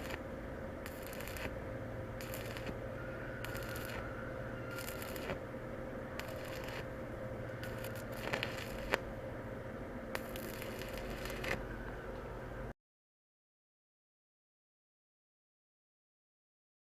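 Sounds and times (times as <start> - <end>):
crackling welding arc: 0.0 - 5.5, 6.2 - 7.0, 7.6 - 9.2, 10.1 - 11.6
steady hum: 0.0 - 12.8.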